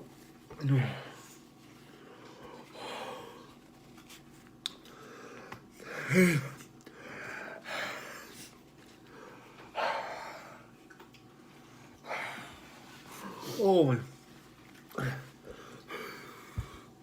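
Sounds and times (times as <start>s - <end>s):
man breathing hard: 1.9s - 3.6s, 4.8s - 10.7s, 12.0s - 13.6s, 15.0s - 17.0s
man groaning: 6.0s - 6.6s.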